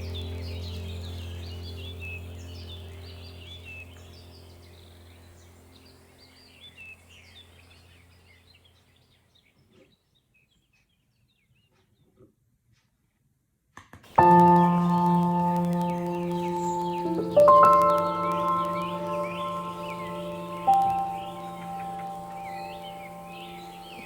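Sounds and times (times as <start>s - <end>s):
low steady drone: 0.0s - 5.9s, 14.2s - 24.0s
faint clicks: 14.1s - 24.0s
birds chirping: 14.2s - 24.0s.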